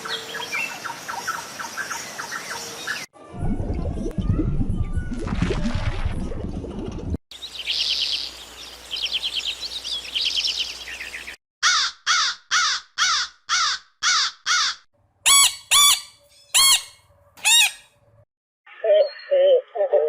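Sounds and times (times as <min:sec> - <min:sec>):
harsh bird caws: 0:11.6 - 0:14.9
high chirping trills: 0:15.3 - 0:17.9.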